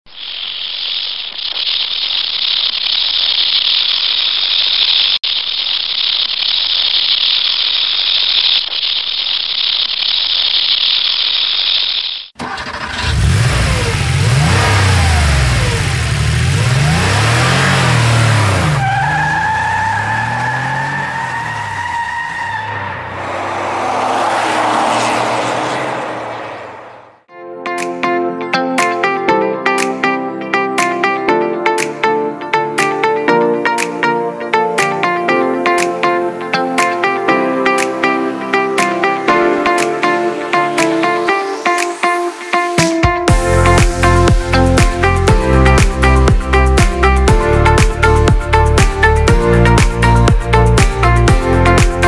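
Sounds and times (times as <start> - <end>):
car engine revving: 12.4 - 27.3.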